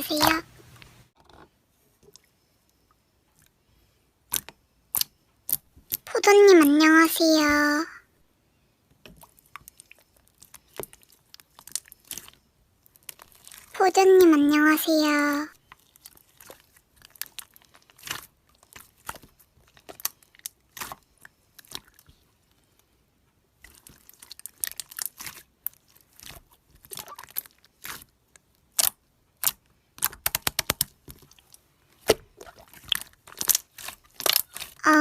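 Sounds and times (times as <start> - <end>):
slime crackling and popping: 4.3 - 6.1, 9.1 - 13.8, 15.7 - 22.2, 23.6 - 35.0.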